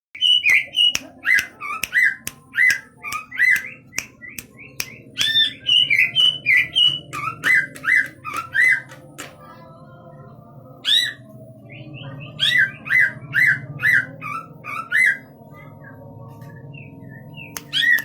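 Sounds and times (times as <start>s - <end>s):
bird singing whistled phrases: 0.2s - 8.8s, 16.8s - 18.0s
bird clicking notes: 0.4s - 5.6s, 7.0s - 9.3s, 17.6s - 18.0s.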